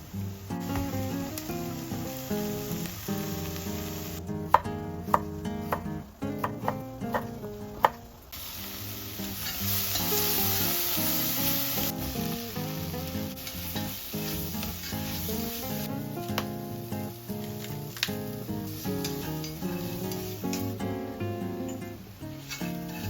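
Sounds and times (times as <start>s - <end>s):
food sizzling in a pan: 0.0s - 23.0s
utensil knocking on pan: 4.5s - 8.0s.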